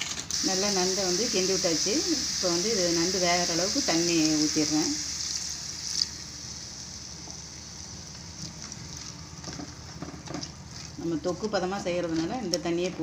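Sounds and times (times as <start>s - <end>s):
water sizzling in hot pan: 0.3s - 9.8s.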